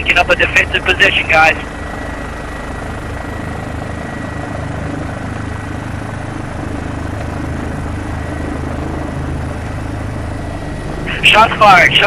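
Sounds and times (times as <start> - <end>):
helicopter engine and rotor drone: 0.0 - 12.0
thin constant whine: 0.0 - 12.0.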